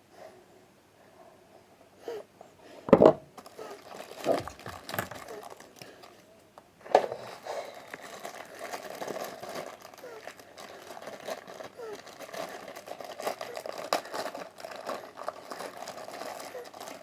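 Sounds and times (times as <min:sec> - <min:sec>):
packaging crinkling and tearing: 0:03.4 - 0:06.2, 0:07.2 - 0:17.0.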